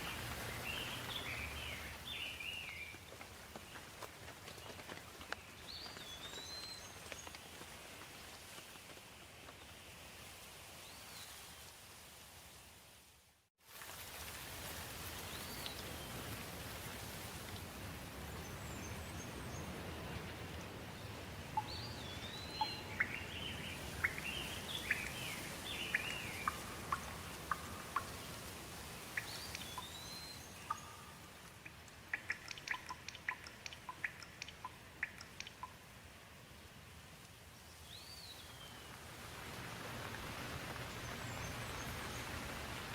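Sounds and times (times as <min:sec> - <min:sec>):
steady rain hiss: 0:00.0 - 0:42.9
birds whistling and chirping: 0:29.2 - 0:31.1.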